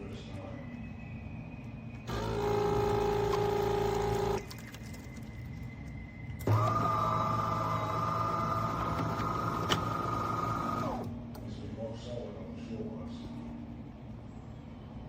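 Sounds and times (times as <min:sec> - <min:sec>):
small electric motor whining: 0:02.1 - 0:04.4, 0:06.4 - 0:11.1.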